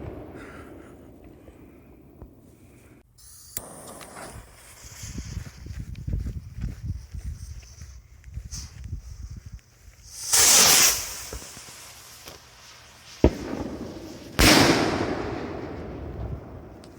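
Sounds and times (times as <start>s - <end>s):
firework crack: 0.0s - 3.0s, 10.0s - 16.9s
firework rocket whoosh: 10.0s - 16.9s
firework burst: 10.1s - 16.9s.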